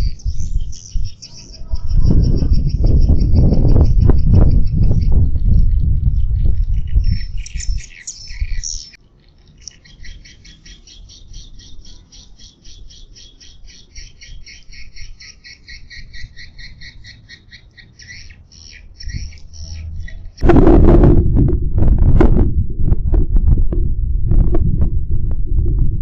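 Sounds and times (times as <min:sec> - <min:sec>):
low rumble: 0:19.4 - 0:26.0.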